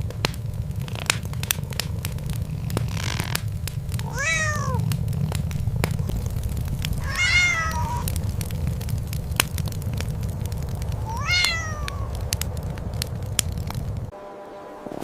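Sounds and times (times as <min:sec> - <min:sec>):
sharp clicks: 0:00.0 - 0:14.1
steady low rumble: 0:00.0 - 0:14.1
cat meowing: 0:03.9 - 0:05.1, 0:06.9 - 0:08.2, 0:11.0 - 0:12.2.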